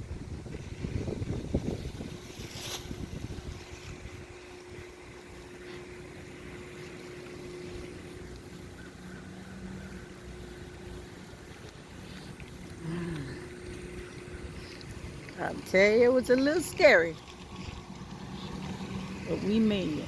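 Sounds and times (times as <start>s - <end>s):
wind gusting on microphone: 0.0s - 4.9s
faint steady hum: 0.0s - 20.0s.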